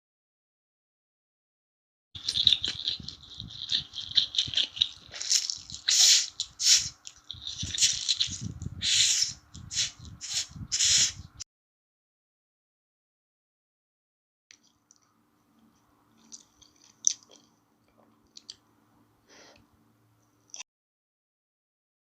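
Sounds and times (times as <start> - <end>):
wet chewing and smacking: 2.2 - 8.8, 16.1 - 18.6
slurping: 2.2 - 11.4.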